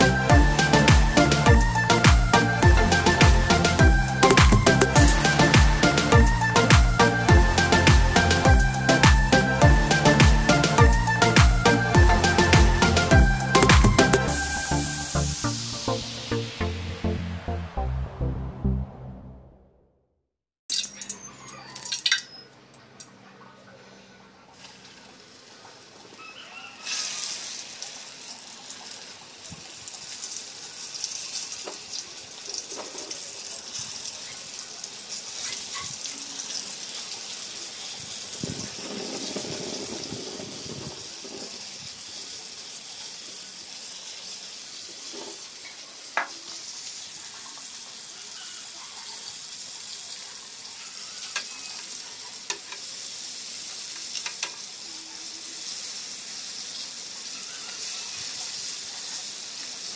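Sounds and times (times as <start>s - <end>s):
chicken frying in hot oil: 20.7s - 23.2s, 24.2s - 59.9s.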